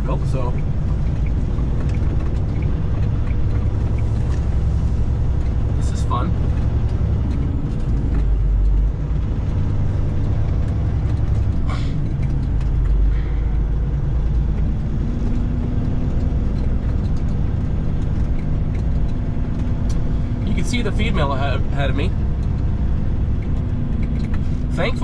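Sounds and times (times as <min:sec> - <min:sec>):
truck diesel engine drone: 0:00.0 - 0:25.0.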